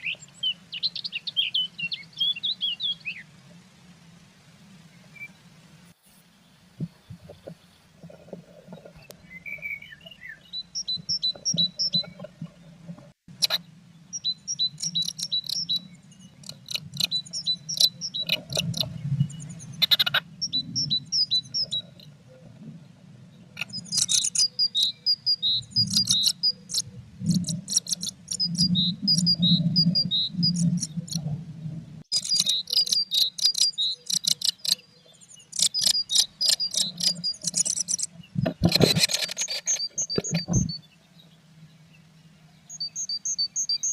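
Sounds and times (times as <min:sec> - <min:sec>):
small birds chirping: 0:00.0 - 0:03.7, 0:04.8 - 0:43.9
low rumble: 0:28.6 - 0:32.1.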